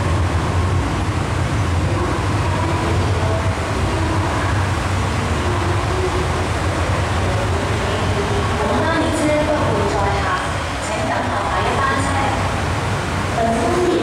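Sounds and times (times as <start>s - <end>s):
train low rumble: 0.0s - 14.0s.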